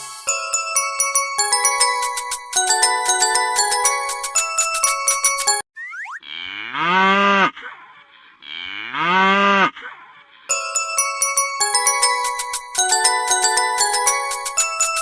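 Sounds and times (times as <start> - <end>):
mallet percussion music: 0.0 - 5.6, 10.5 - 15.0.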